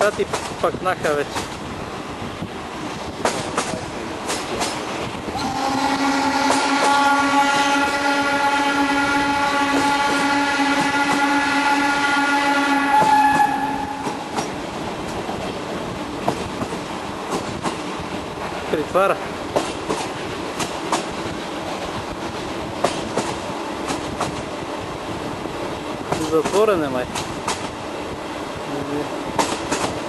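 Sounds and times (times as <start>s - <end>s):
train running noise: 0.0s - 30.0s
steam locomotive whistle: 5.3s - 14.3s.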